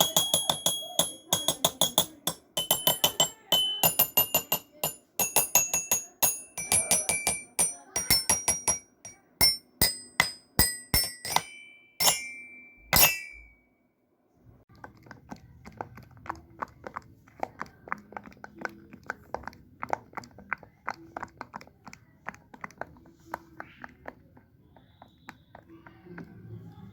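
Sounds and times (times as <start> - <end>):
chiming mallet percussion music: 0.0 - 13.5.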